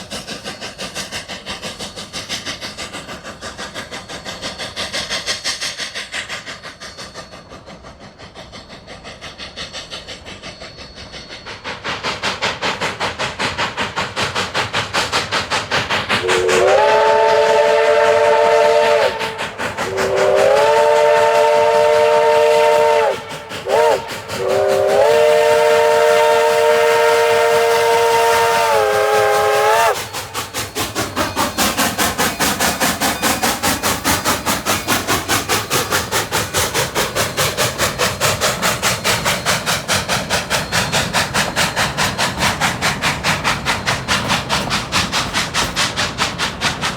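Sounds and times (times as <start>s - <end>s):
steam locomotive exhaust beating: 0.0s - 46.9s
steam locomotive chime whistle: 16.2s - 36.1s, 36.8s - 45.4s.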